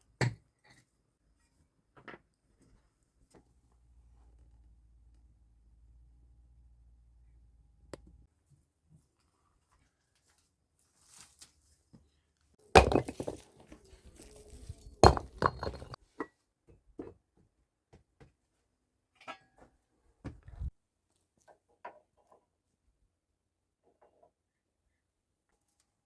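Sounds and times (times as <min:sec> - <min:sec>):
hard objects clinking with ringing: 0:12.6 - 0:16.0.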